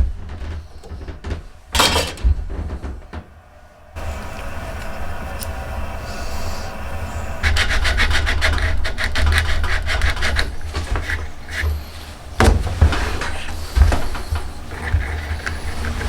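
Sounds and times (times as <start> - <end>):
hand rasp filing wood: 4.0 - 16.0.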